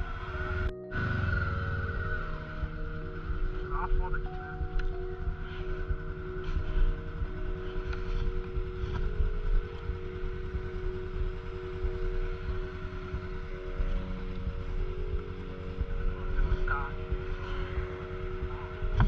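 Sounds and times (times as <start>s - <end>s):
motorcycle engine cruising: 0.0s - 19.0s
wind rumble on microphone: 0.0s - 19.0s.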